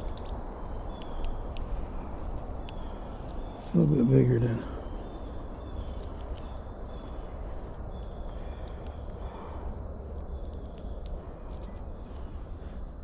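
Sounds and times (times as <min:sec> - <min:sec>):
faint clicks and rustles: 0:00.0 - 0:03.8, 0:04.6 - 0:13.0
steady high-pitched hum: 0:00.0 - 0:13.0.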